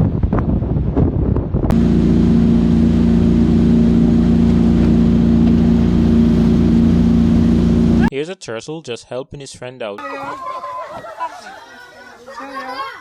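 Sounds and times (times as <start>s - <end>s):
wind gusting on microphone: 0.0s - 3.0s
loud steady motor drone: 1.7s - 8.1s.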